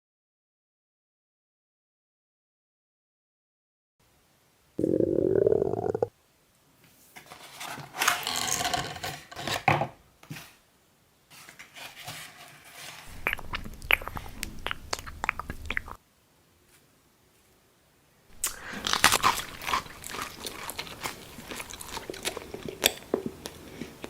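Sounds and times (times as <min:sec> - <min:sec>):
noisy bites: 0:04.8 - 0:06.1
crunchy chewing: 0:13.1 - 0:16.0, 0:18.3 - 0:24.0
sharp crunching clicks: 0:18.4 - 0:23.0.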